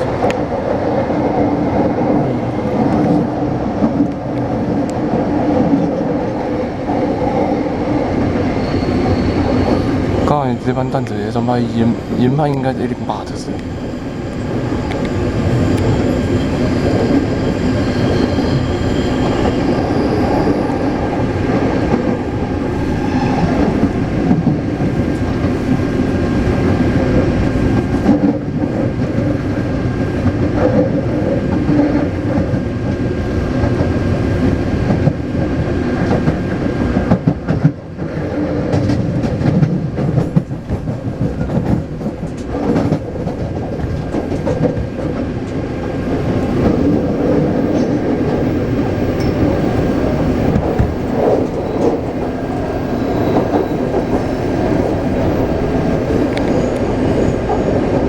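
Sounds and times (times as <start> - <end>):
train rumble with wheel clatter: 0.0 - 58.0.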